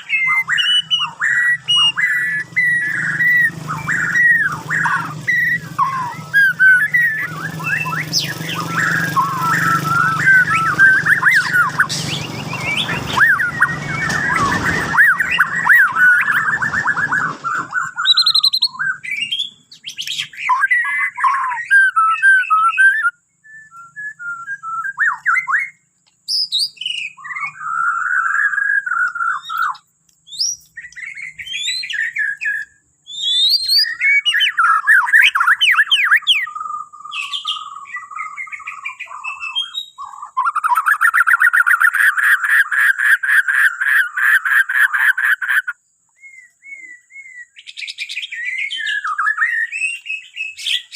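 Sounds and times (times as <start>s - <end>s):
steady background noise: 0.0s - 21.7s
bird whistling song: 0.0s - 50.9s.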